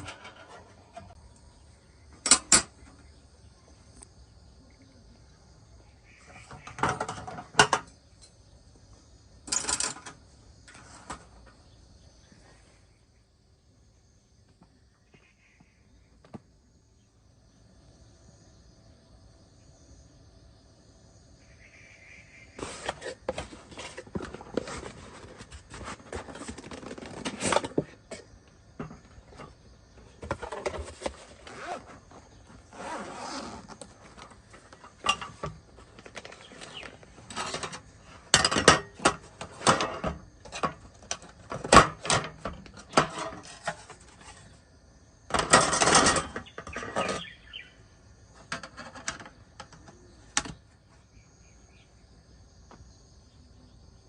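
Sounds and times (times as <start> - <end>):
insects chirping: 0.0 - 54.0.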